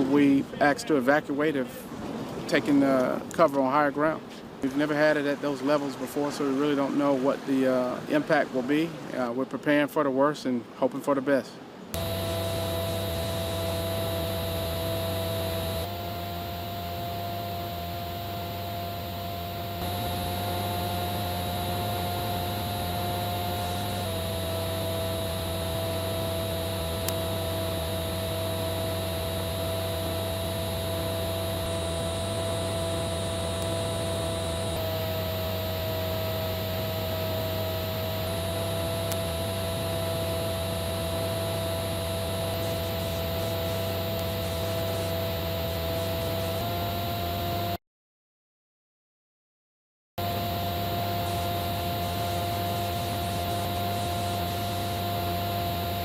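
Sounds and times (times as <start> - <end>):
steady hum with hiss: 0.0 - 47.7, 50.2 - 56.0
fixed tones: 12.0 - 46.6.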